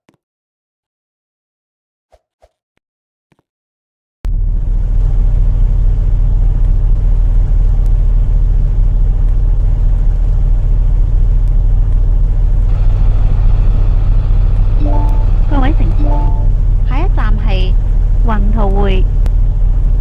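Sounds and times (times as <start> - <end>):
bus engine rumble: 6.0 - 20.0.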